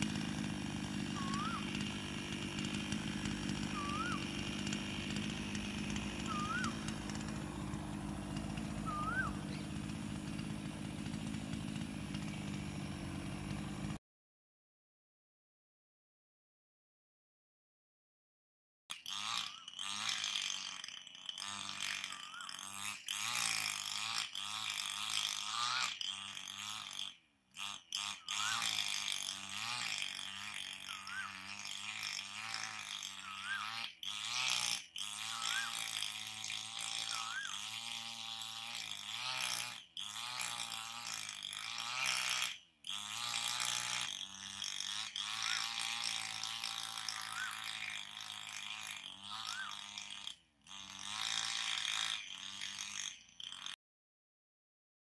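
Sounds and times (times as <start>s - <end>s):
chorus of bird calls: 1.2s - 1.7s, 3.8s - 4.3s, 6.2s - 6.9s, 8.8s - 9.8s, 30.9s - 31.4s, 37.1s - 37.6s, 47.2s - 47.7s, 49.4s - 49.8s.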